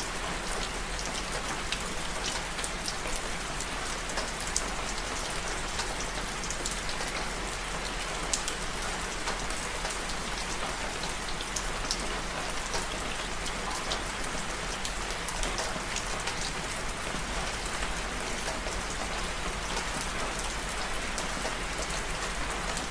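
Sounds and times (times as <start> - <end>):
small sharp raindrop ticks: 0.2 - 14.2.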